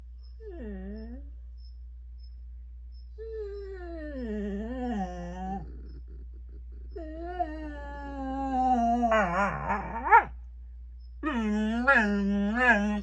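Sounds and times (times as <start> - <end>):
dog howling whines: 3.2 - 5.6, 7.0 - 10.3, 11.2 - 13.0.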